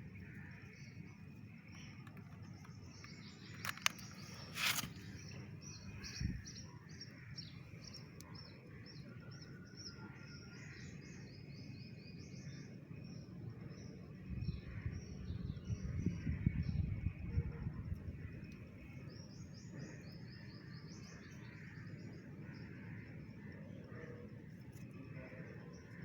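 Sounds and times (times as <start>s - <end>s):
small birds chirping: 0.0s - 9.6s
low outdoor background: 0.0s - 26.0s
brief rustle: 2.1s - 5.3s.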